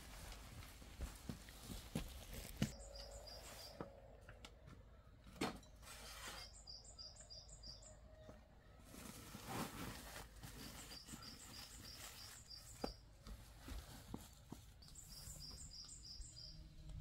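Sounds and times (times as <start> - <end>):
small bird chirping: 2.7 - 3.8, 6.2 - 8.7, 10.5 - 13.0, 14.8 - 16.8.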